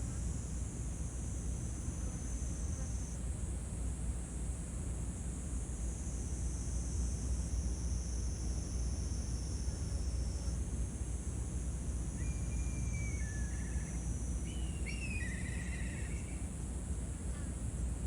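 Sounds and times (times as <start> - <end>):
insects trilling: 12.0 - 16.6.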